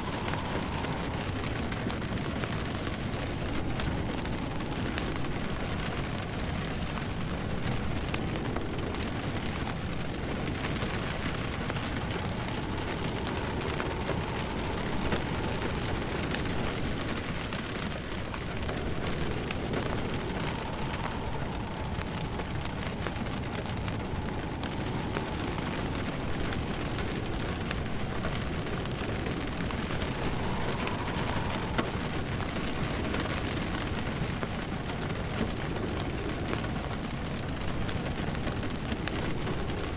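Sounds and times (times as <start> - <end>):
faint wavering whistle: 0.0 - 6.1, 9.6 - 34.4
steady rain falling: 0.0 - 39.9
wood fire crackling and popping: 0.0 - 39.9.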